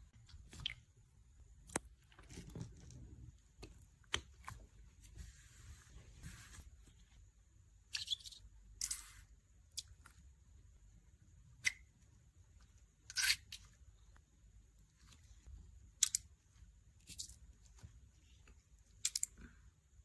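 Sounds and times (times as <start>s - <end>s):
toy clicks and snaps: 16.0s - 16.3s, 19.0s - 19.4s.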